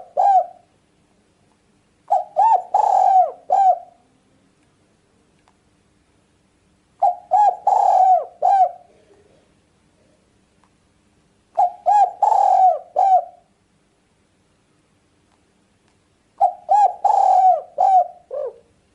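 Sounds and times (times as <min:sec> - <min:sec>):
dove cooing: 0:00.0 - 0:00.7, 0:02.1 - 0:04.1, 0:07.0 - 0:09.4, 0:11.6 - 0:13.5, 0:16.4 - 0:18.8.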